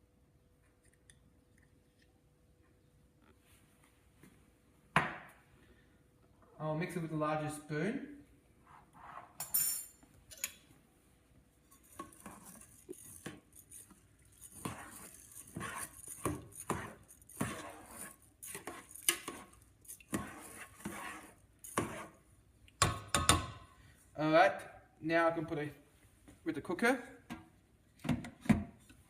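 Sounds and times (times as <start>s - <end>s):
spoon scraping a pot: 11.6s - 22.3s.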